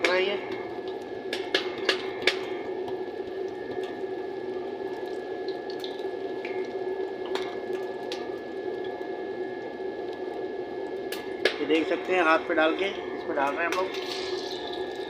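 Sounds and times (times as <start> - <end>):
oil popping: 0.5 - 11.9, 13.6 - 15.0
patty sizzling in hot fat: 13.8 - 15.0.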